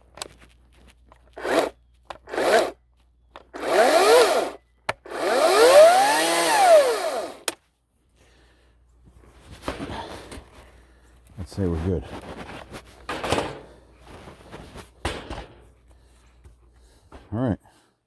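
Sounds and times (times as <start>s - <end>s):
electric chainsaw whining: 1.4s - 2.8s, 3.4s - 7.6s.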